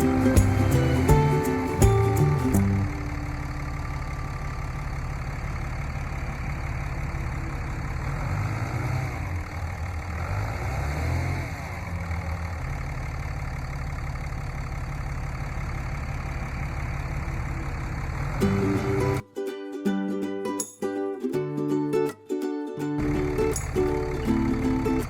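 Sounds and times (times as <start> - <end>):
tractor engine idling: 0.0 - 10.4, 11.7 - 19.2, 23.0 - 25.0.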